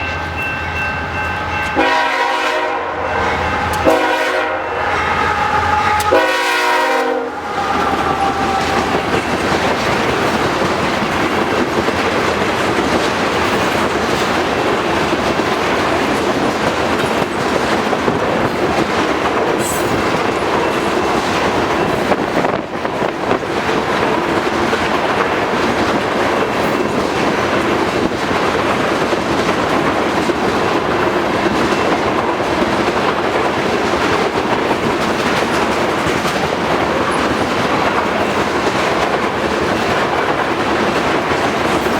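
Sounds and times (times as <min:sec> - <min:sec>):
freight train rumbling past: 0:00.0 - 0:41.9
locomotive horn blasts: 0:01.6 - 0:08.9.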